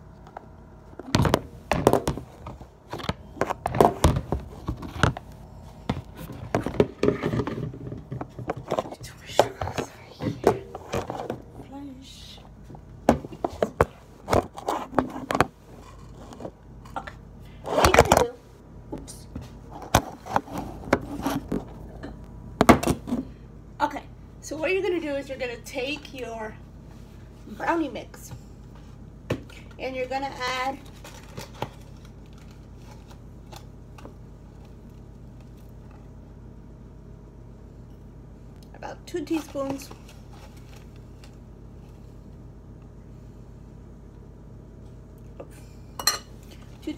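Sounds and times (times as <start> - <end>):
low background hum: 0.0 - 46.9
knocks and clicks of kitchen items: 0.3 - 11.4, 12.7 - 15.6, 19.3 - 23.3.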